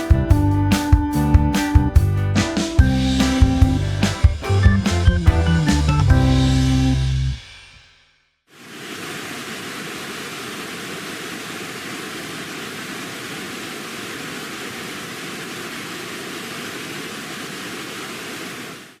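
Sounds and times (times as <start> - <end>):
waterfall rushing: 8.5 - 18.8.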